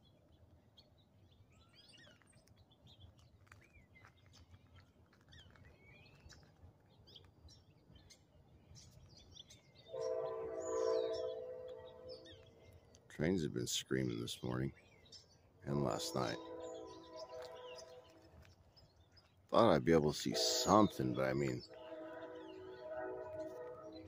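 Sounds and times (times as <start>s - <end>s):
train horn chord: 9.9s - 12.5s, 15.9s - 18.3s, 20.1s - 24.0s.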